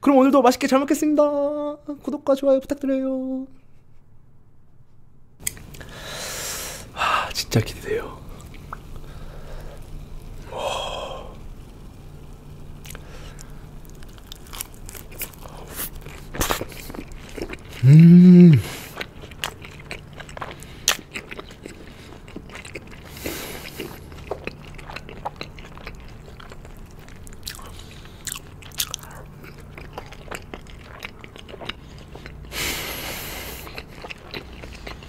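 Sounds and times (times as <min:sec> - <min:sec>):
mouth chewing crunchy chicken: 0:12.8 - 0:35.0.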